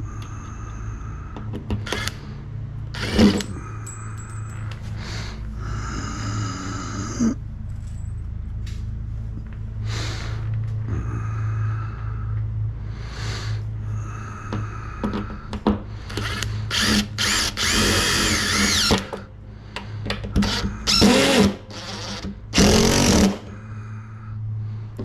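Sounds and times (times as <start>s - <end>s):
steady low hum: 0.0s - 25.0s
cordless drill driving screws: 1.8s - 2.2s, 3.0s - 3.5s, 16.1s - 19.2s, 20.4s - 23.4s.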